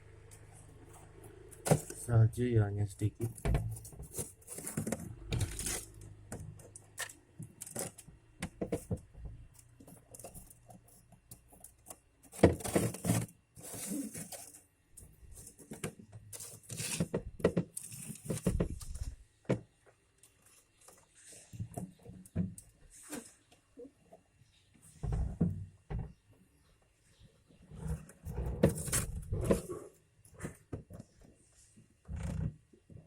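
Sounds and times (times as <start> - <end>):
rustling or scraping: 3.2 - 6.2, 12.3 - 19.2, 27.5 - 32.2.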